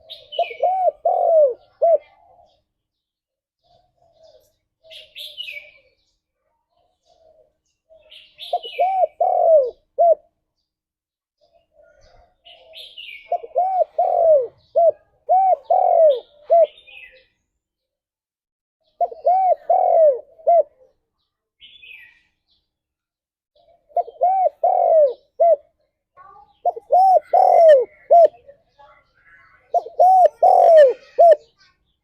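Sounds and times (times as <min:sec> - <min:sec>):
dove cooing: 0:00.0 - 0:02.6, 0:07.1 - 0:10.3, 0:11.8 - 0:17.2, 0:18.9 - 0:21.0, 0:23.6 - 0:25.8, 0:26.6 - 0:28.4, 0:29.7 - 0:31.5.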